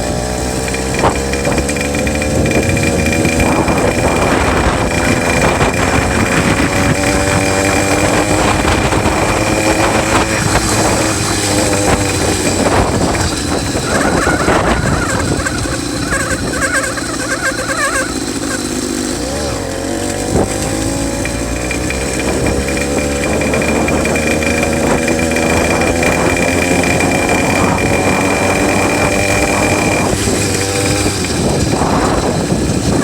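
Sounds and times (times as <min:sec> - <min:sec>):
two-stroke bicycle engine running: 0:00.0 - 0:33.0
wavering high squeal: 0:03.1 - 0:18.9.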